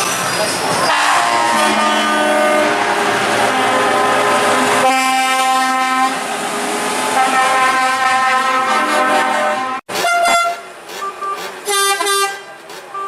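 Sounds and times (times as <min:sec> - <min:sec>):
truck air horn chords: 0:00.9 - 0:02.8, 0:04.8 - 0:06.2, 0:07.2 - 0:10.7.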